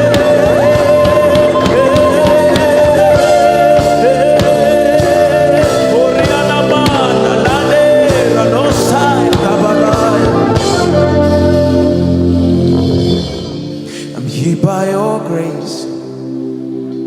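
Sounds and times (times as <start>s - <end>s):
person singing worship music: 0.0s - 17.0s
sustained chords: 0.0s - 17.0s.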